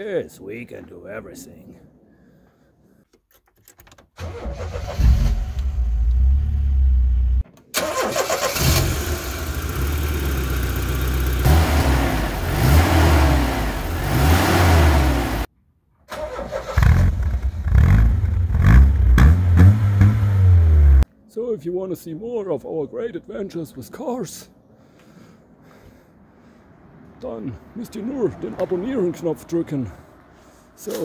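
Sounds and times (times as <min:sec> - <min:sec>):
car engine starting and revving: 0:04.2 - 0:15.5, 0:16.1 - 0:21.0.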